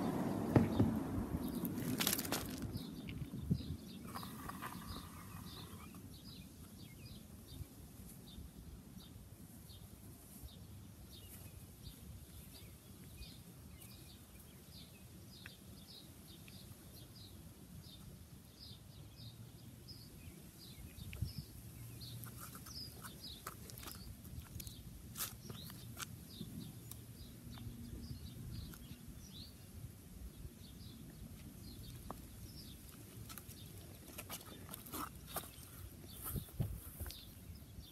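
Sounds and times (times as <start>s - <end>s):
small bird chirping: 11.1s - 29.7s.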